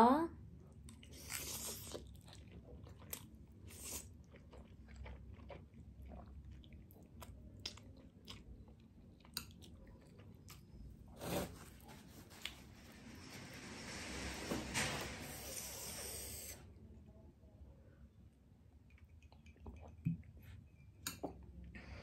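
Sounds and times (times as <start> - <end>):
wet chewing: 0.8 - 10.8.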